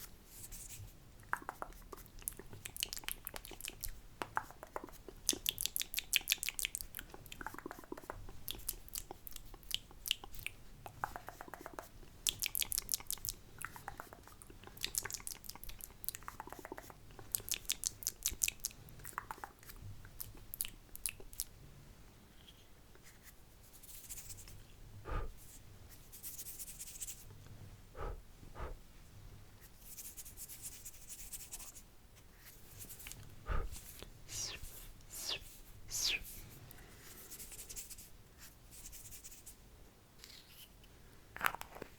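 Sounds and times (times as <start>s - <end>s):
tongue clicks and lip smacks: 1.2s - 21.6s, 28.0s - 28.8s, 33.0s - 36.2s
hissing mouth sounds: 1.3s - 21.5s, 25.0s - 25.4s, 28.0s - 28.8s, 33.4s - 36.4s.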